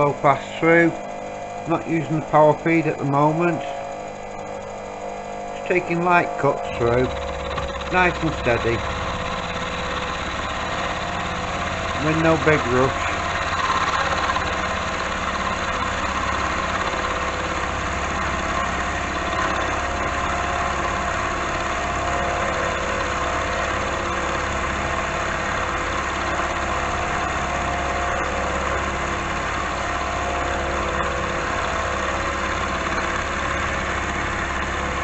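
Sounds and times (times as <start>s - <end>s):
milling machine cutting steel: 0.0s - 35.0s.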